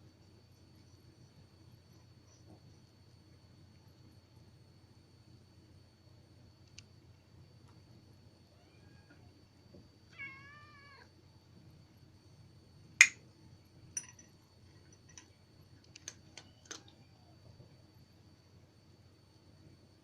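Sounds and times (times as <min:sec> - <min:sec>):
cat meowing: 0:08.6 - 0:09.3, 0:10.1 - 0:11.1.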